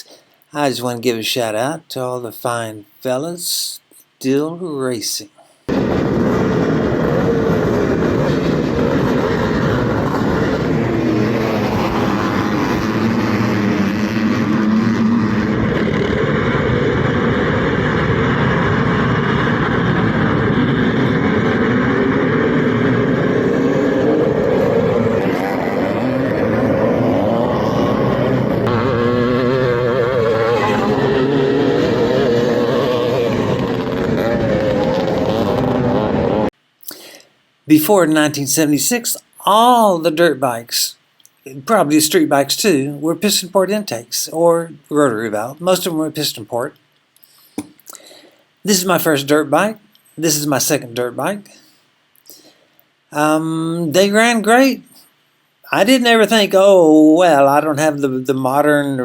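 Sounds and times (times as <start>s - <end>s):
motocross bikes revving: 23.5s - 36.5s.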